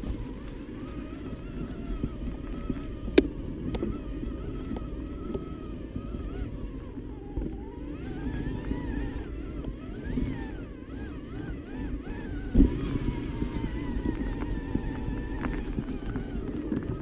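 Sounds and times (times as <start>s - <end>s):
electric bike motor whine: 0.0s - 17.0s
rumble of tyres and wind: 0.0s - 17.0s.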